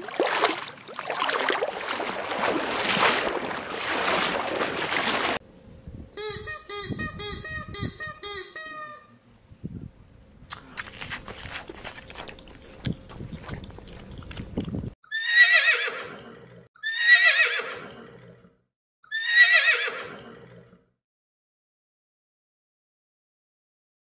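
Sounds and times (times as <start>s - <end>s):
horse whinnying: 15.1s - 18.5s, 19.1s - 20.8s.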